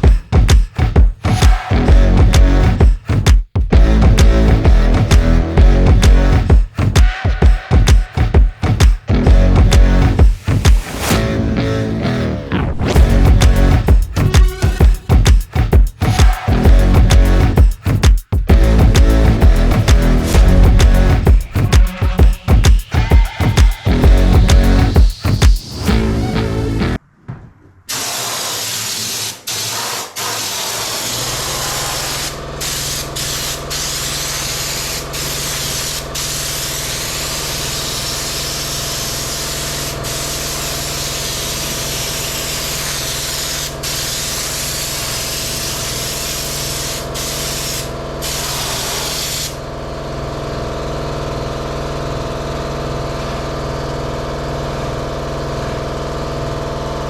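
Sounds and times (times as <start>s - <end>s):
steady low hum: 18.5s - 23.1s
spray gun hissing: 27.9s - 49.6s.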